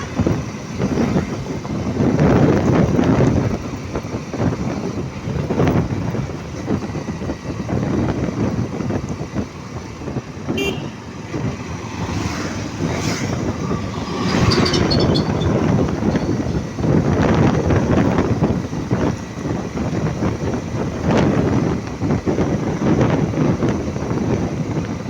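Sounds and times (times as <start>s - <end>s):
road traffic rumble: 0.0s - 25.0s
vehicle horn toot: 10.5s - 11.1s.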